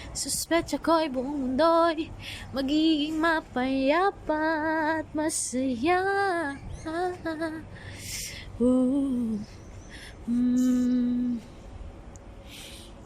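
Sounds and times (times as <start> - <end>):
woman humming: 10.2 - 11.5.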